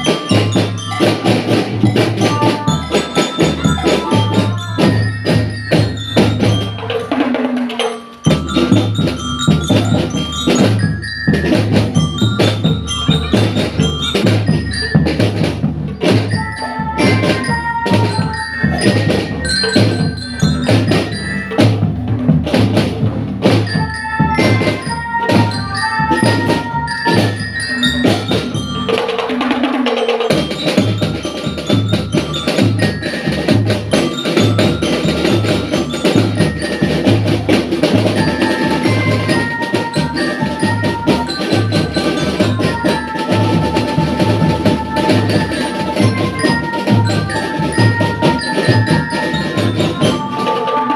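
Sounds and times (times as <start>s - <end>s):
glockenspiel melody: 0.0s - 50.9s
marching drums beating: 0.0s - 50.9s.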